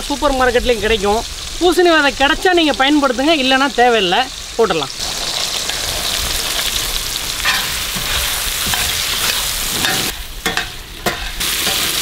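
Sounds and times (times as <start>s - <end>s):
food sizzling in hot oil: 0.0s - 12.0s
ladle scraping a pan: 7.4s - 12.0s.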